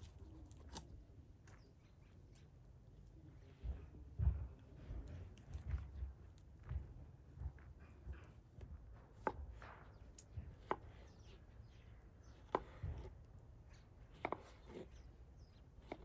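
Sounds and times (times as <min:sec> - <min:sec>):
knife chopping on cutting board: 0:09.2 - 0:09.7, 0:10.4 - 0:11.2, 0:12.4 - 0:13.1, 0:14.2 - 0:14.8.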